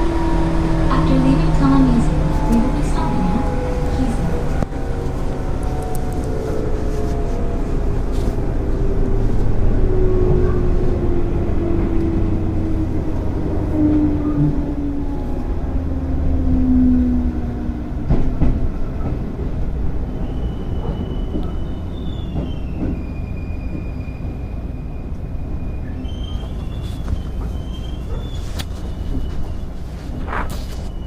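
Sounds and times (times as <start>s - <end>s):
train motor hum: 0.0s - 20.0s
train wheels rumbling on rails: 0.0s - 31.0s
high wheel squeal: 20.2s - 29.8s, 30.8s - 31.0s.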